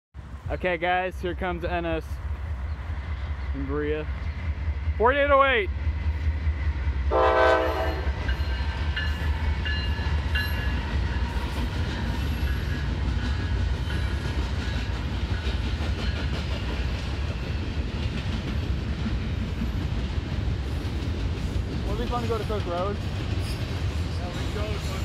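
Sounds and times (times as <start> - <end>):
rolling train cars rumble and clatter: 0.2 - 25.0
train air horn chord: 7.1 - 8.2.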